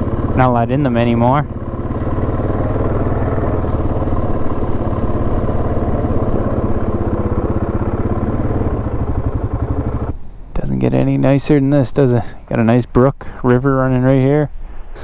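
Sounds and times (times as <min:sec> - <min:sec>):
atv engine running steadily: 0:00.0 - 0:10.6.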